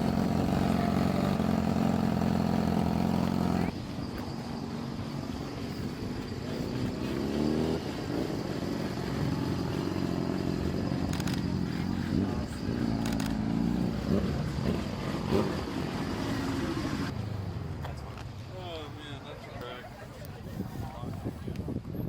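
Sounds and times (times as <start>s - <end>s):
car engines revving: 0.0s - 3.8s, 5.1s - 18.2s.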